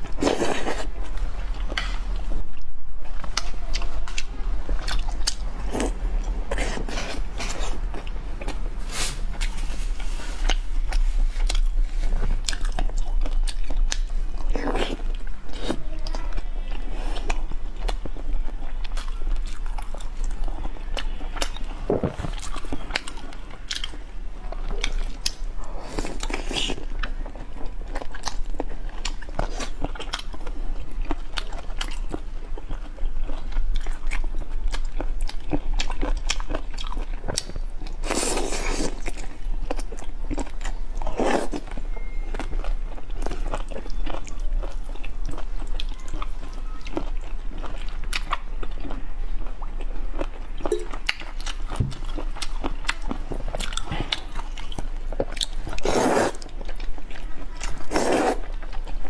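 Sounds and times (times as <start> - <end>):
crunchy chewing: 0.0 - 59.0.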